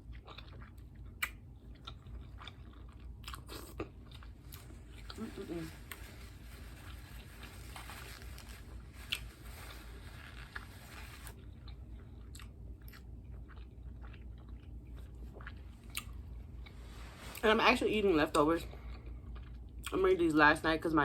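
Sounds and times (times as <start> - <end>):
person chewing crunchy food: 0.0 - 17.4, 18.7 - 19.9.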